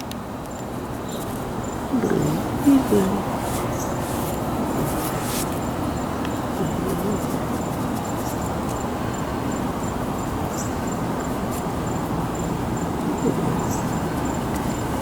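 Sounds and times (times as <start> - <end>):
low outdoor noise: 0.0 - 15.0
cricket chirping: 5.6 - 15.0.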